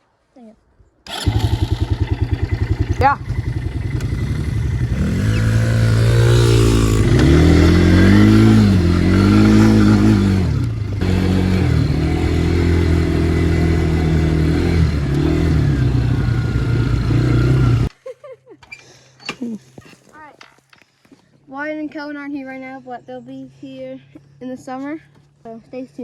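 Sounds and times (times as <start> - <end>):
dirt bike engine revving: 1.1 - 17.9.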